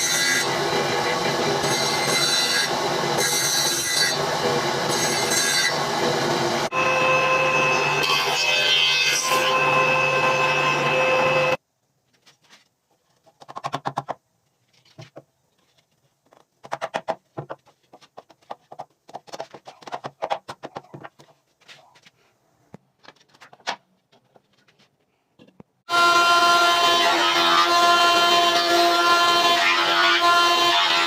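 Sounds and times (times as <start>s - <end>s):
power tool cutting wood: 0.0s - 11.6s, 25.9s - 31.0s.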